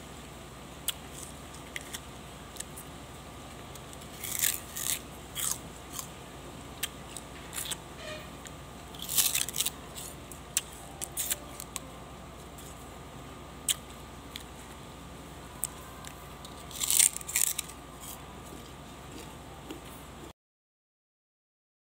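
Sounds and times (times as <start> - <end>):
sugarcane crunching and tearing bites: 0.8 - 2.8, 3.7 - 6.1, 6.8 - 7.8, 8.9 - 11.9, 13.6 - 14.5, 15.6 - 19.3.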